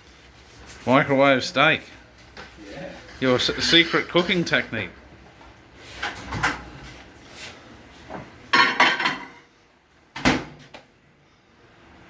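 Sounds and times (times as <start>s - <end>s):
dishes clattering: 8.5s - 9.4s.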